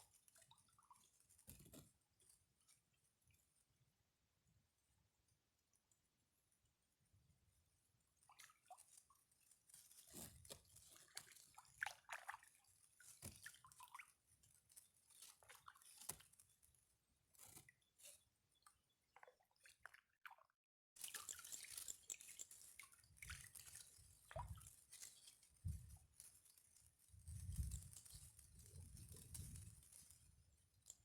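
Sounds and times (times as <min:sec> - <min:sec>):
water dripping and splashing: 0:10.0 - 0:14.2, 0:19.2 - 0:25.9.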